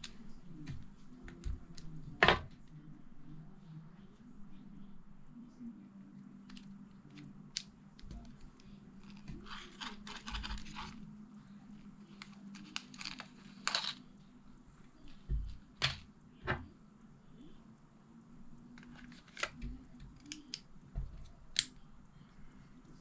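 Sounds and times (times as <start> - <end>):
low steady hum: 0.0 - 23.0
tearing or crinkling: 9.0 - 11.0, 12.1 - 14.1.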